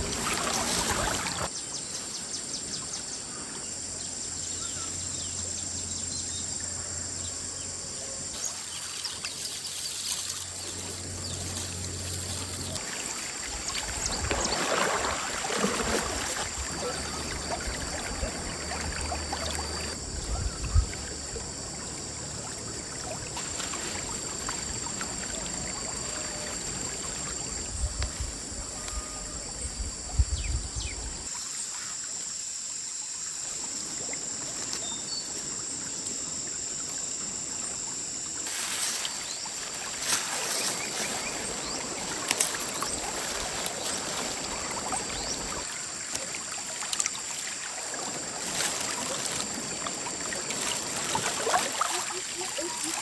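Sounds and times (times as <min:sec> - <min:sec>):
stream flowing over rocks: 0:00.0 - 0:01.5, 0:12.0 - 0:20.0, 0:39.6 - 0:53.0.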